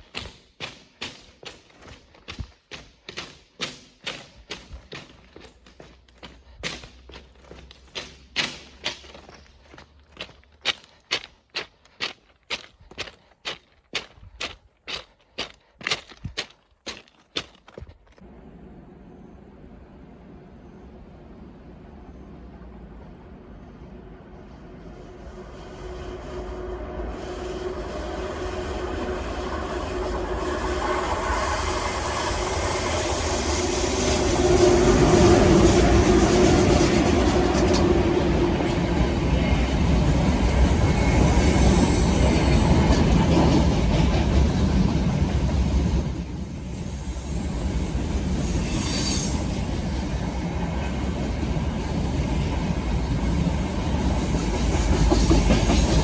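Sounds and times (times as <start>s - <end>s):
freight train passing: 18.2s - 56.0s.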